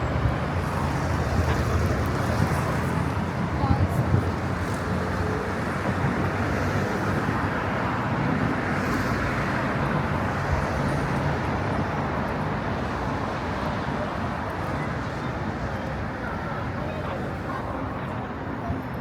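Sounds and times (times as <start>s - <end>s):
city street traffic: 0.0s - 19.0s.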